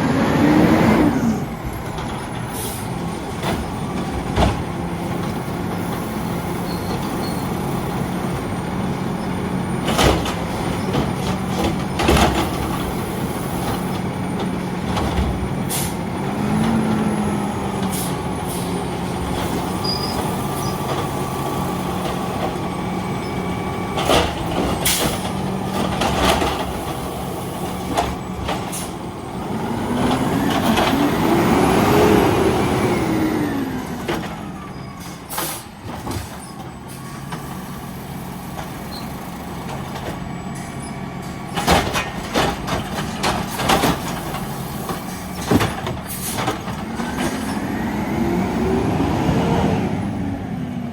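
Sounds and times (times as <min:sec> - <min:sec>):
diesel truck engine running: 0:00.0 - 0:50.9
sharp bangs and knocks: 0:41.5 - 0:47.4.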